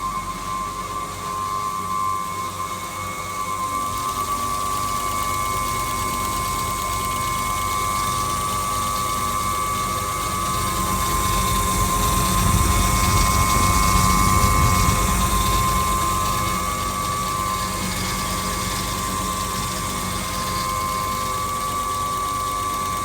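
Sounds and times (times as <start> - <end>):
washing machine motor whine: 0.0 - 23.0
washing machine rumble: 5.0 - 23.0.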